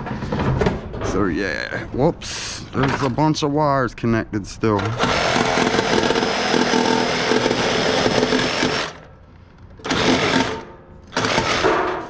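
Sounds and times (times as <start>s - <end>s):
power drill backing out screws: 4.8s - 9.1s, 9.7s - 11.8s.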